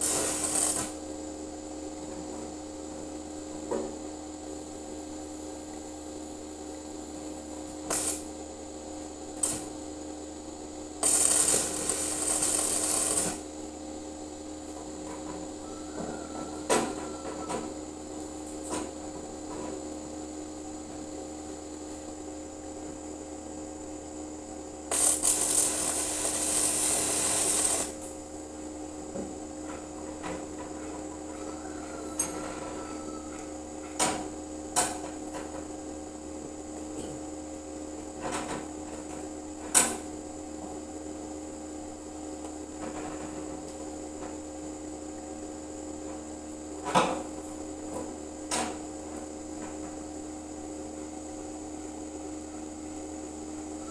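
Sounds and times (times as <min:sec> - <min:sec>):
electric arc welding crackle: 0:00.0 - 0:01.0, 0:07.9 - 0:08.3, 0:11.0 - 0:13.6, 0:24.9 - 0:28.1
welding setup humming: 0:00.0 - 0:03.5, 0:04.5 - 0:15.6, 0:20.4 - 0:28.9.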